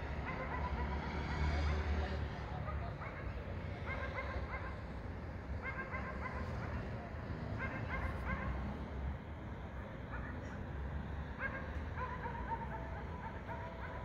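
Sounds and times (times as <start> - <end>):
low city night rumble: 0.0 - 14.0
dog barking: 0.1 - 1.4, 2.6 - 4.9, 5.6 - 8.8, 10.1 - 10.7, 11.4 - 14.0.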